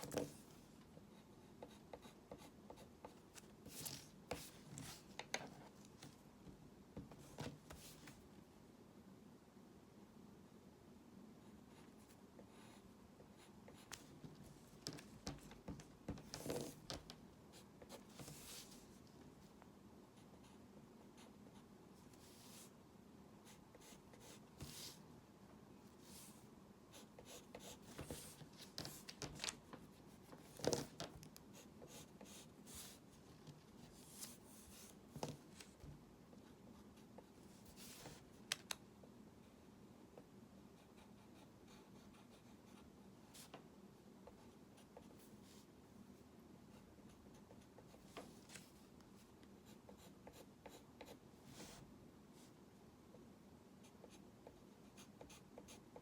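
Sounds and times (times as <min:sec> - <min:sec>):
pencil scratching drawing strokes: 0:22.1 - 0:22.7, 0:23.4 - 0:25.0.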